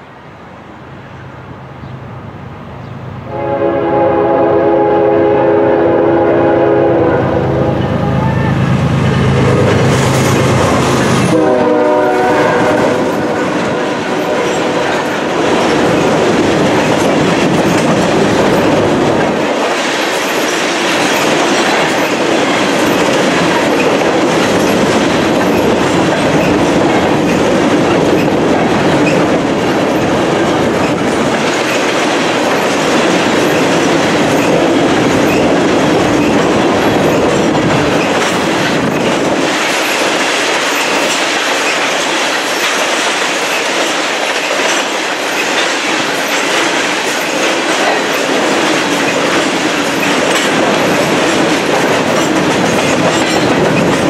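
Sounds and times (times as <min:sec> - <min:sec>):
freight cars rumbling: 0:06.2 - 0:42.7
wheels clacking over rail joints: 0:09.4 - 0:54.0.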